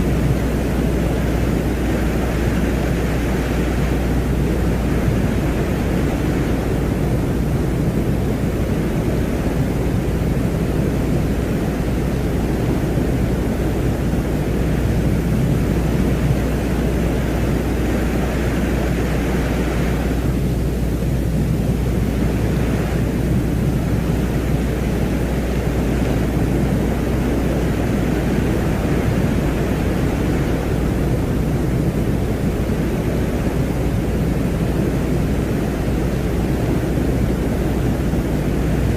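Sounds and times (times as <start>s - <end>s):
deep wind-like rumbling: 0.0s - 38.9s.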